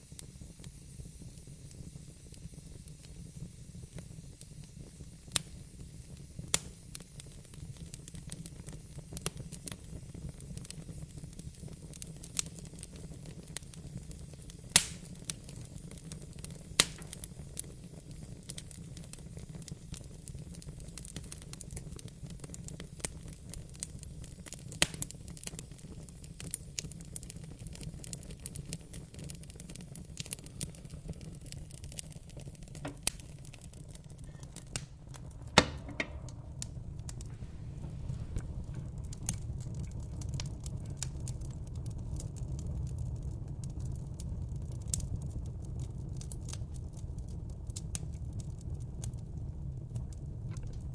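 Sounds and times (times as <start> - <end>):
fire snapping and popping: 0.0 - 50.9
wood fire crackling: 0.0 - 50.9.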